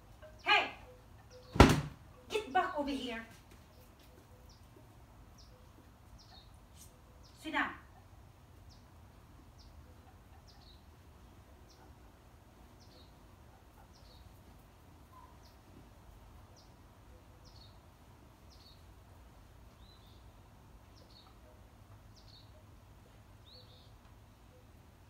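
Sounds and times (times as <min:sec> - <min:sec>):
bird high falling chirp: 0:00.2 - 0:02.5.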